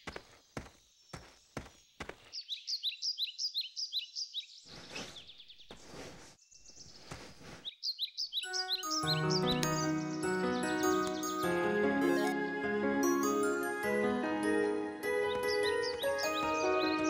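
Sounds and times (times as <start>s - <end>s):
birds chirping: 0.0s - 12.3s, 14.6s - 17.0s
music cue: 8.7s - 17.0s.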